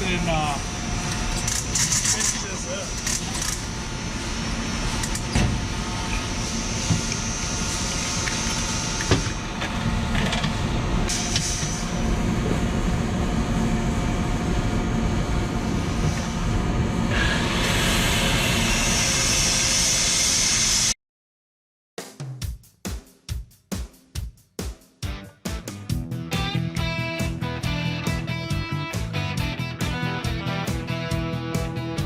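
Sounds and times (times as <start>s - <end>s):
workshop machinery hum: 0.0s - 21.0s.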